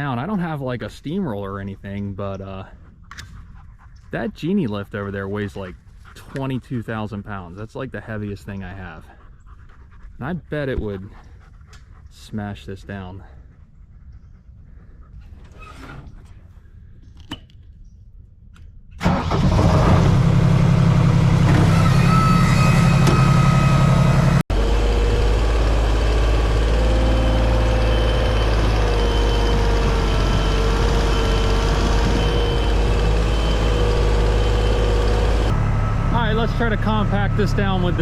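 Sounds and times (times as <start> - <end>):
lift engine running with whine: 19.0 - 38.0.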